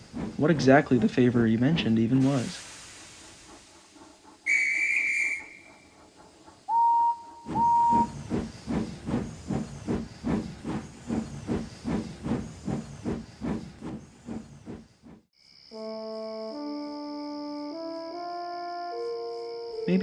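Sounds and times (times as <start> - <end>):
steam engine chuffing: 0.0 - 15.3
steam locomotive whistle: 4.5 - 5.8, 6.7 - 8.2.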